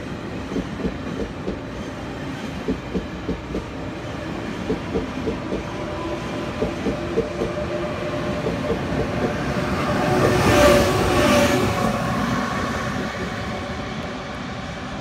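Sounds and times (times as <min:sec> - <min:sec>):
train running noise: 0:00.0 - 0:15.0.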